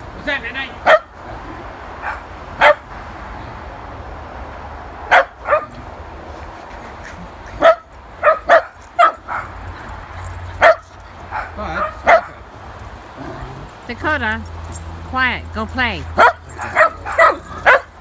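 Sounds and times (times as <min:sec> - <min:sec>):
dog barking: 0:00.8 - 0:01.1, 0:02.0 - 0:02.9, 0:05.1 - 0:05.9, 0:07.6 - 0:09.7, 0:10.5 - 0:12.5, 0:16.1 - 0:18.0.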